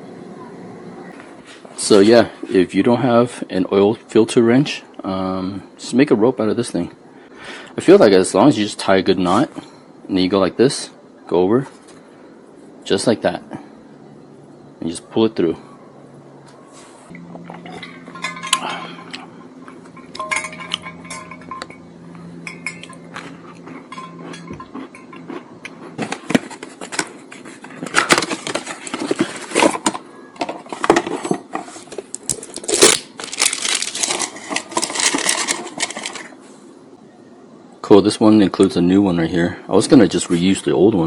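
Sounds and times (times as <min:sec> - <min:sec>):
steady low hum: 0:00.0 - 0:30.1
tools clinking and rattling: 0:17.1 - 0:36.4.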